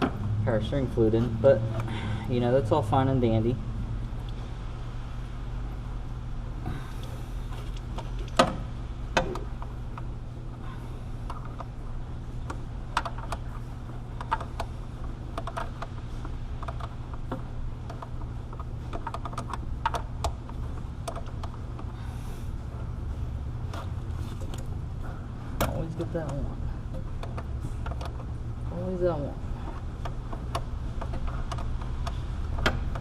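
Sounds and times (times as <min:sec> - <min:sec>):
low hum: 0:00.0 - 0:33.0.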